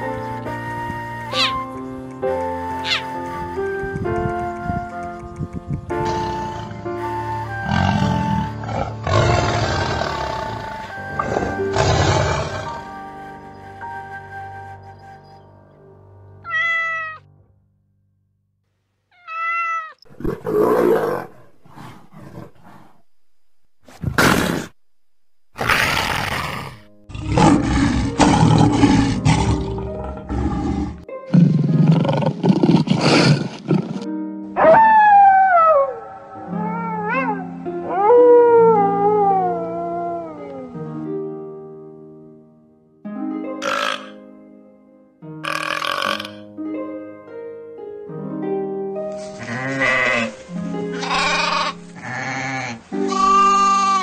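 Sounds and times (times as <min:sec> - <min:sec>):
background music: 0:00.0 - 0:17.6, 0:25.9 - 0:54.0
wolf howling: 0:01.1 - 0:01.7, 0:02.6 - 0:03.4, 0:34.6 - 0:40.7
tiger roaring: 0:07.6 - 0:12.9, 0:20.1 - 0:23.0, 0:25.6 - 0:34.1.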